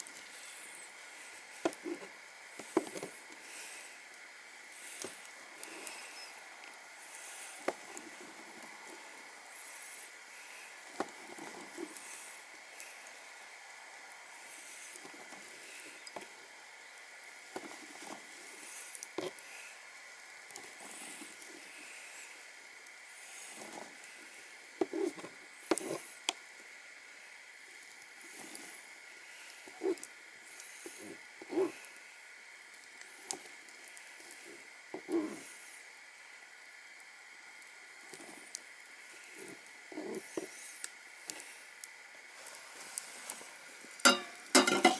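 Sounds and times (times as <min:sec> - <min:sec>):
wood fire crackling and popping: 0:00.0 - 0:35.7, 0:37.0 - 0:44.9
steady hiss: 0:00.0 - 0:44.9
cookware knocking and scraping: 0:44.1 - 0:44.9.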